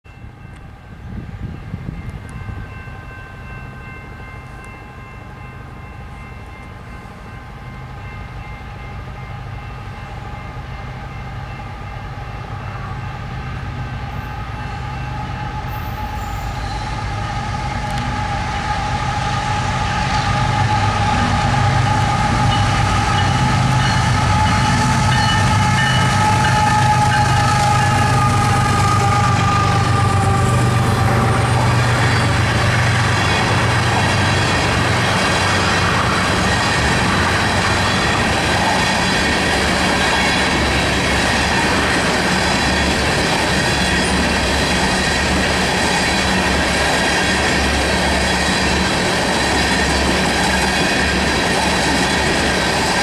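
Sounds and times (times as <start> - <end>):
diesel locomotive rumble: 11.4 - 53.0.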